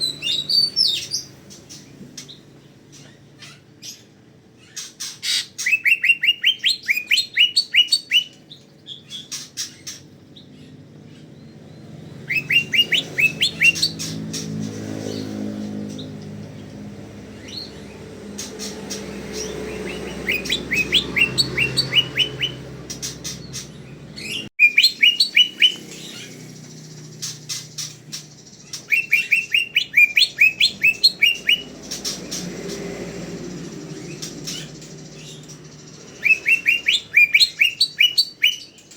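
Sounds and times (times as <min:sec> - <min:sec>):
bird singing quick rising chirps: 0:10.6 - 0:38.9.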